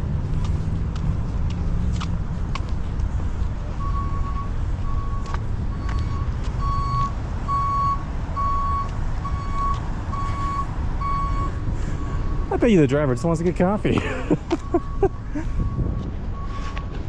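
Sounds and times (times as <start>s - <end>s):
reversing alarm beeping: 3.8s - 12.5s, 14.5s - 17.0s.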